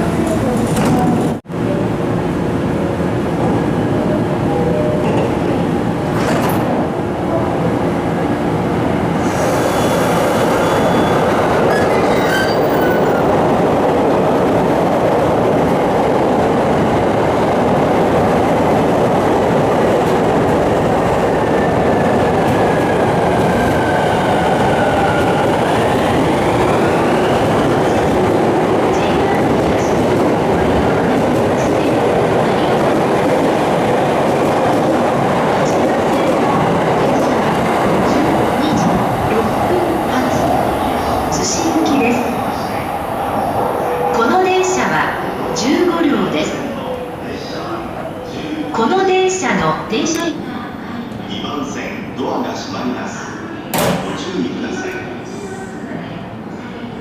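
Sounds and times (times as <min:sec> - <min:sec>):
train wheels rumbling on rails: 0:08.8 - 0:50.6.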